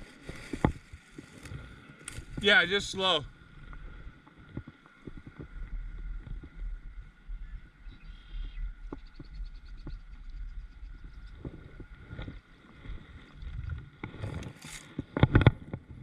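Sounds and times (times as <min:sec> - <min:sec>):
water and wind rumble: 0:00.0 - 0:16.0.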